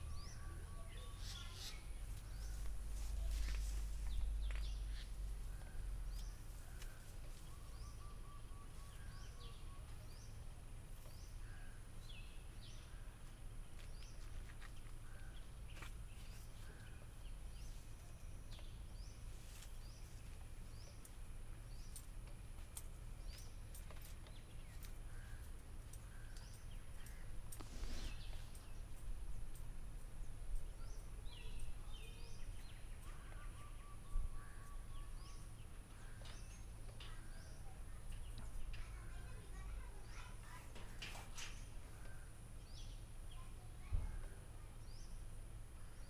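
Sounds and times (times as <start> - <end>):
birds chirping: 0.0 - 46.0
bird trill: 7.4 - 9.9.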